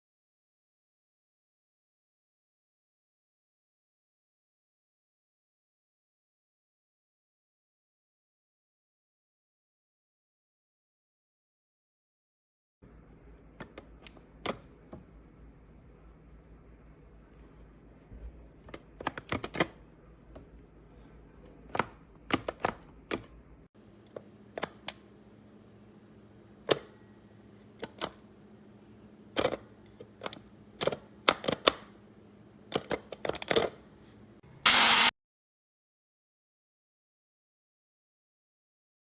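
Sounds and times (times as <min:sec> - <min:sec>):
plastic clicks and knocks: 0:21.4 - 0:23.4.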